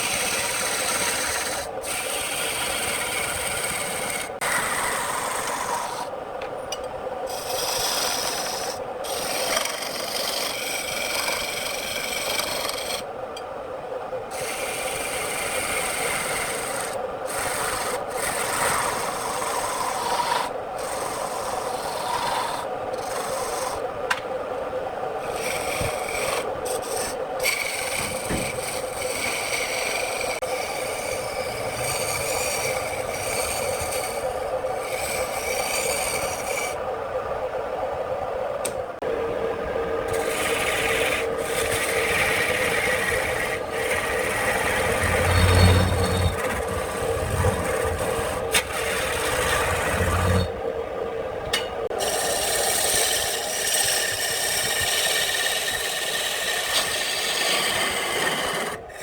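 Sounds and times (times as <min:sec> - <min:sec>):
tool scraping spinning wood: 0:00.0 - 0:06.1, 0:07.3 - 0:13.1, 0:14.3 - 0:24.2, 0:25.2 - 0:36.8, 0:40.1 - 0:50.6, 0:51.8 - 0:59.0
lathe hum: 0:00.0 - 0:06.4, 0:07.2 - 0:13.2, 0:14.3 - 0:36.9, 0:38.6 - 0:59.0.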